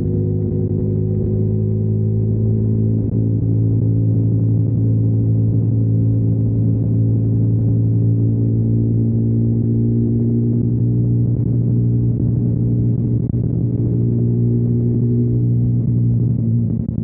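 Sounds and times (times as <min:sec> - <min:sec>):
motorcycle engine holding steady revs: 0:00.0 - 0:17.0.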